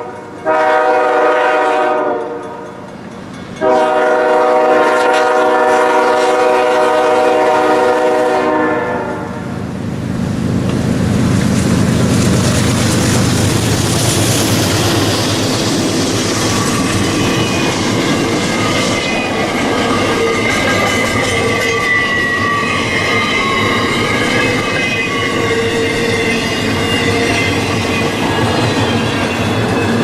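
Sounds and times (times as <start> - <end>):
train horn blast: 0.0 - 2.6, 3.6 - 9.6
train wheels rumbling on rail: 0.0 - 30.0.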